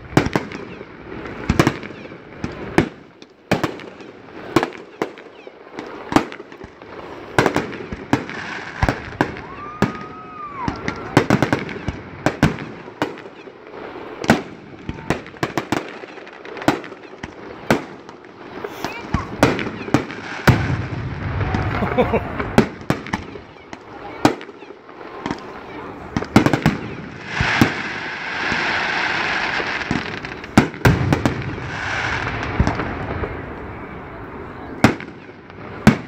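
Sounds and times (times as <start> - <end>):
rising and falling firework whistle: 8.5 - 11.5, 20.3 - 22.6.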